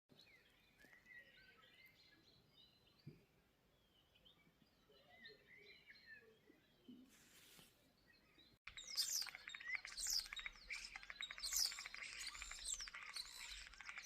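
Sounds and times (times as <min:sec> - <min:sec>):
starlings singing: 0:08.1 - 0:14.0.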